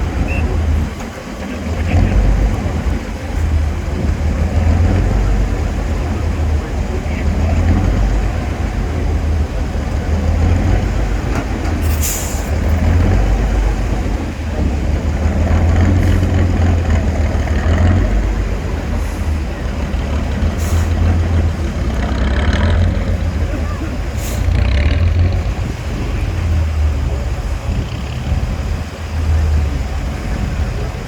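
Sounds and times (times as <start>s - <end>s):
diesel truck engine rumbling: 0.0s - 31.0s
air hissing: 11.8s - 12.6s.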